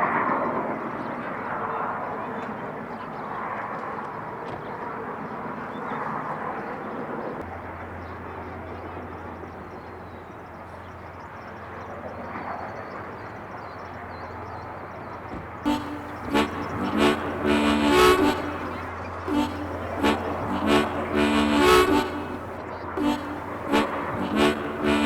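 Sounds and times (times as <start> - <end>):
low hum: 15.7 - 25.0.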